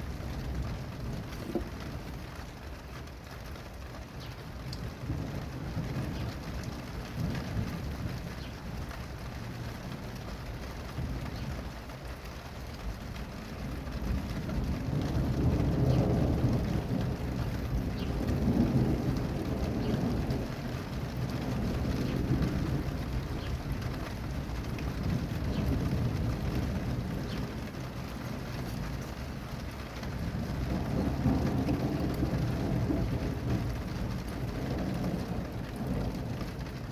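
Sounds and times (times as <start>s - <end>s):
steady rain: 0.0s - 36.9s
rolling thunder: 12.9s - 36.9s.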